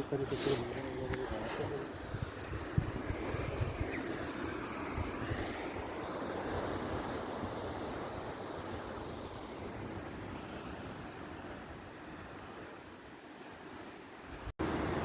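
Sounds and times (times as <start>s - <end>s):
wind buffeting microphone: 0.0s - 10.0s
rushing wind: 0.0s - 15.0s.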